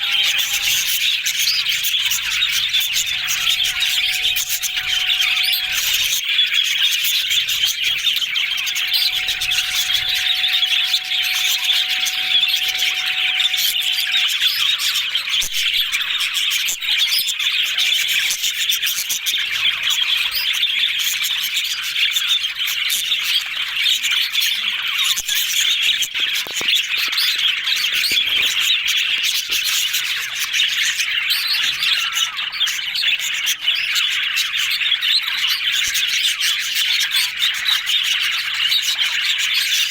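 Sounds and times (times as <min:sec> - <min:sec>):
bird squawks: 0:00.0 - 0:06.3, 0:07.2 - 0:14.4
budgerigars chattering and chirping: 0:00.0 - 0:17.8.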